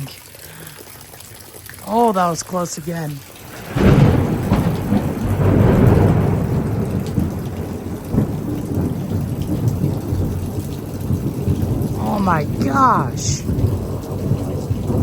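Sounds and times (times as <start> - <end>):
heavy rain: 0.0 - 15.0
thunder rumbling: 3.4 - 15.0.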